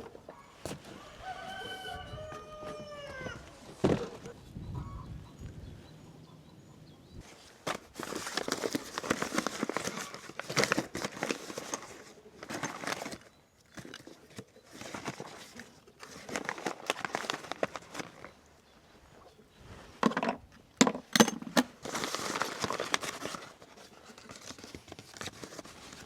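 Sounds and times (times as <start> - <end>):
rustling and crinkling: 0.0 - 1.6, 7.2 - 21.1, 21.7 - 26.0.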